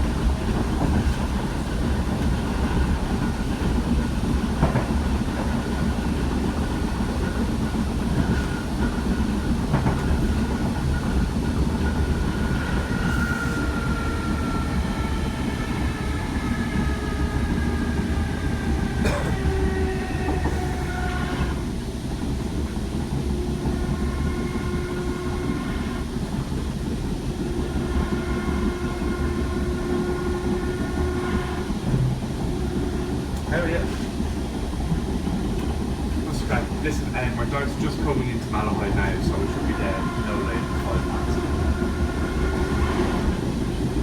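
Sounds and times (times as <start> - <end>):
electric train running rumble: 0.0 - 44.0.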